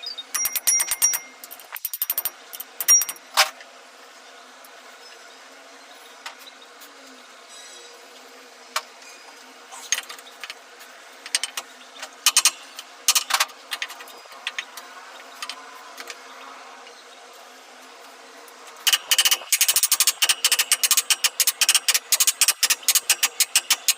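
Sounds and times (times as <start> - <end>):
faint steady background hum: 0.0 - 23.9
hand tools clinking on metal: 0.3 - 3.3.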